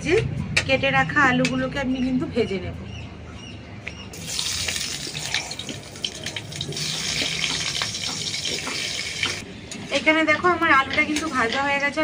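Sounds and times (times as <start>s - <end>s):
oil sizzling and crackling: 4.2s - 9.4s.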